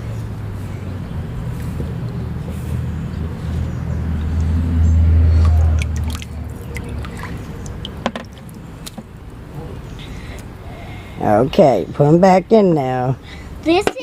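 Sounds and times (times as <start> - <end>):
low steady hum: 0.0 - 13.8
water splashing and dripping: 3.9 - 9.4.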